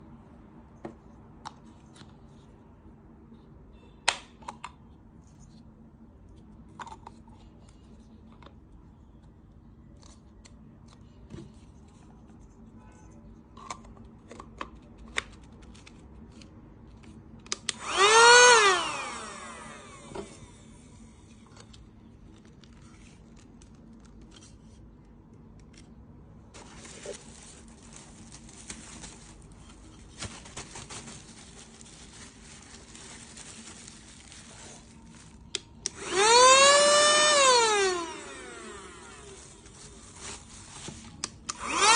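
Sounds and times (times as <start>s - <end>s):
handheld vacuum motor whining: 17.7s - 20.6s, 35.9s - 39.7s, 41.5s - 41.9s.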